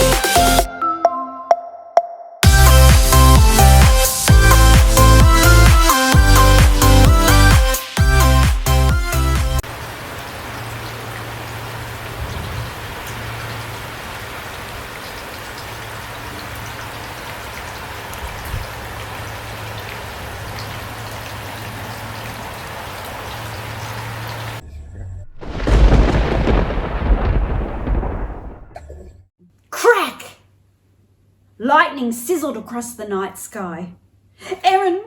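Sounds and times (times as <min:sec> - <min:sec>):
steady rain falling: 0:09.6 - 0:24.6, 0:25.4 - 0:28.8.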